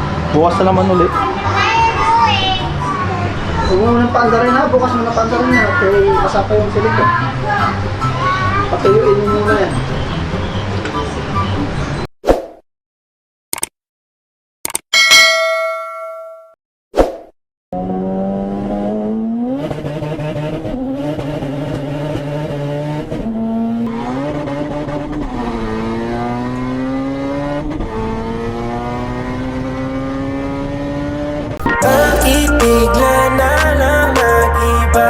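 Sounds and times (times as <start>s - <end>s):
car engine revving: 17.8s - 31.6s.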